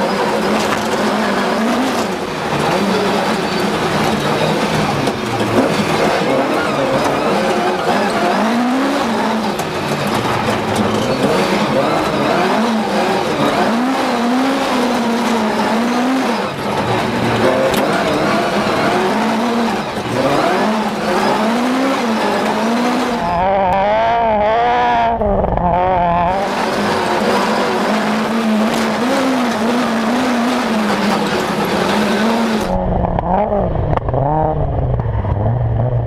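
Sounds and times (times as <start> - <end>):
rally car engine revving: 0.0 - 36.0.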